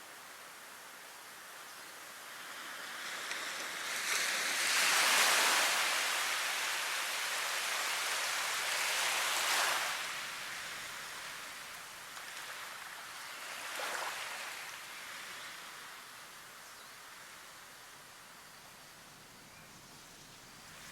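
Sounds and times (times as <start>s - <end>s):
rushing water wave: 2.3s - 16.0s.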